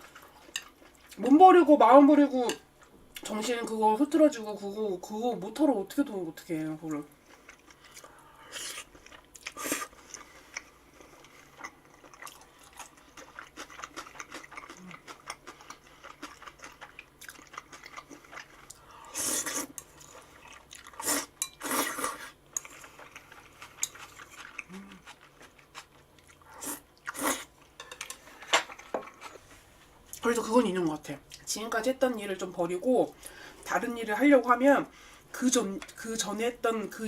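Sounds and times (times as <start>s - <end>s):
chewing and crunching food: 0.0s - 1.3s, 7.0s - 30.3s.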